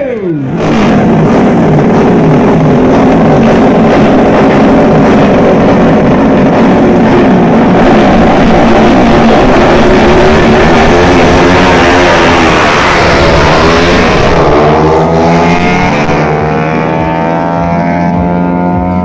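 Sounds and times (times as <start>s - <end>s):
motorcycle engine at high revs: 0.4s - 19.0s.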